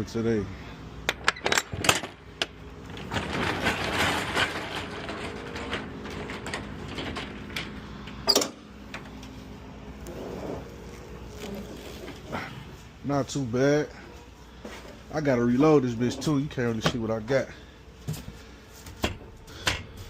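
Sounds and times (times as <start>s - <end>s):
roll-up door rattling open: 1.1s - 8.6s.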